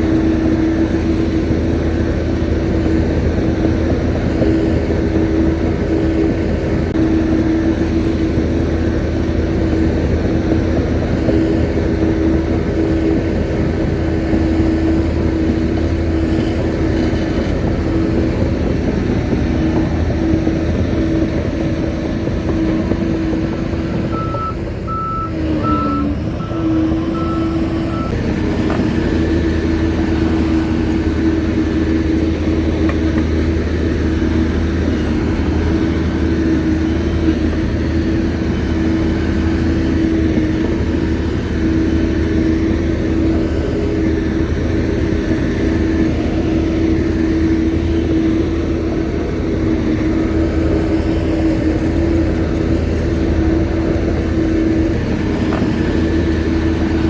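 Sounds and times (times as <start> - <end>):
bulldozer diesel engine running: 0.0 - 57.0
backup alarm beeping: 24.1 - 28.2.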